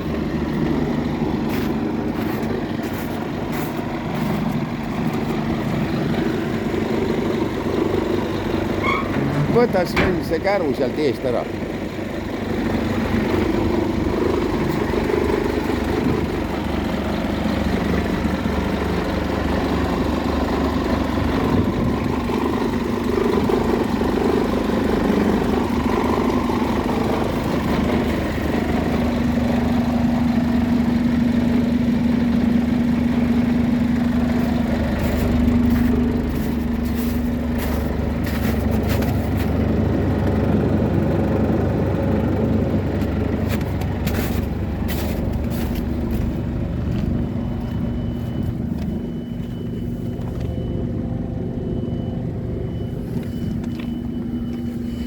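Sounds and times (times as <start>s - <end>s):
bus engine running: 0.0s - 55.0s.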